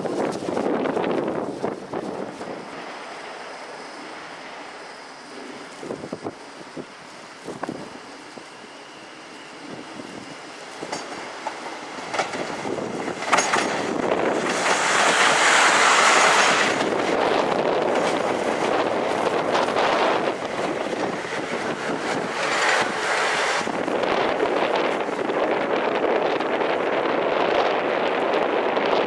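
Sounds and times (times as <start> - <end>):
train wheel and rail noise: 0.0 - 29.0
wheels clicking over rail joints: 9.7 - 29.0.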